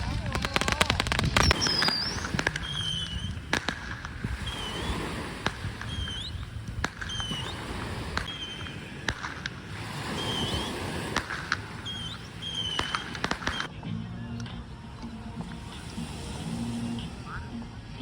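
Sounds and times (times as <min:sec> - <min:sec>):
fireworks cracking: 0:00.0 - 0:13.8, 0:14.5 - 0:18.0
high squeaky chirps: 0:01.4 - 0:03.6, 0:05.7 - 0:08.9, 0:10.0 - 0:13.7.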